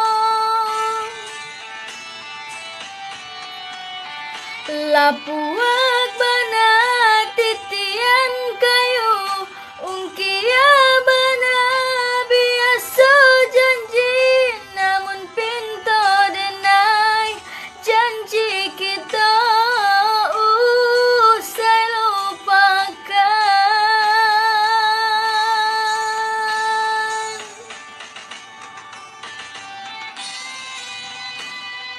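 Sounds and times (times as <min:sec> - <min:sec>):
woman singing melismatic melody: 0:04.7 - 0:27.6.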